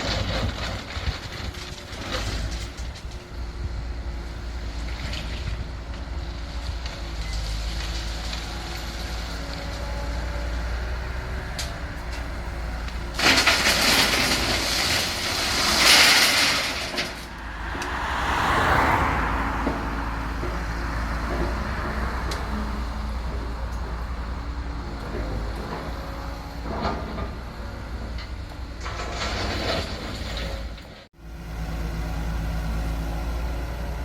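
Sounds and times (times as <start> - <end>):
engine running: 0.0 - 29.6
loud rushing noise: 15.4 - 20.4.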